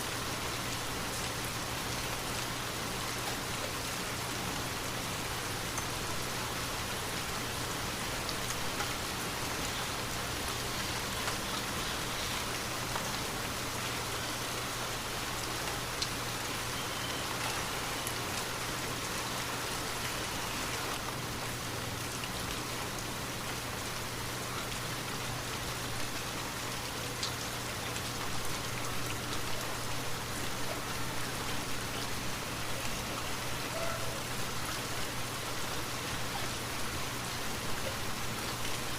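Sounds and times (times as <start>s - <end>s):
rain falling: 0.0s - 38.9s
raindrop ticks: 10.4s - 11.7s.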